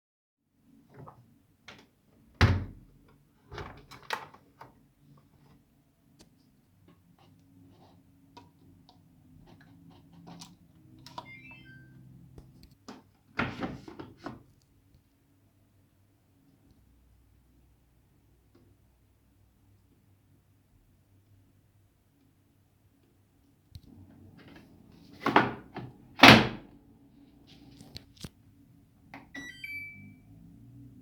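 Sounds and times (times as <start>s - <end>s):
stepping high tones: 11.2s - 12.0s, 29.4s - 30.4s.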